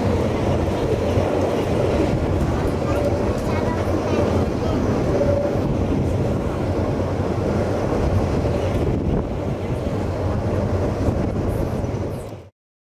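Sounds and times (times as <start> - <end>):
train rumbling: 0.0 - 12.5
wind buffeting microphone: 0.0 - 12.5.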